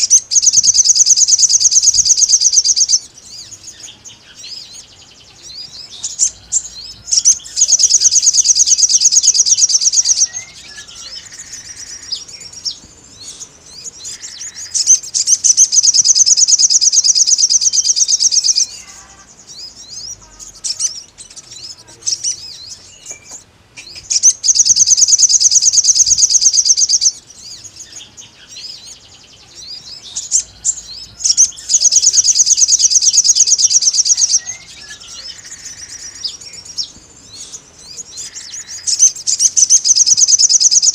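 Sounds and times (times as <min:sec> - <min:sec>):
bird high-pitched trills: 0:00.0 - 0:40.9.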